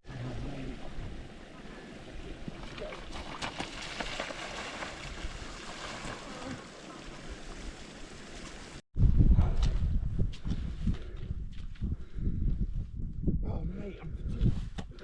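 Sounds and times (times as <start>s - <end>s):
low wind buffeting: 4.3s - 15.0s
wind on microphone: 9.0s - 15.0s.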